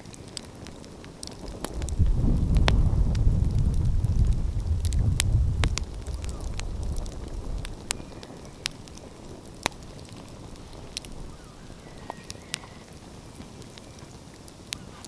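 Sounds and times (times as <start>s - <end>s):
wood fire crackling and popping: 0.0s - 15.0s
low rumble: 1.5s - 8.2s.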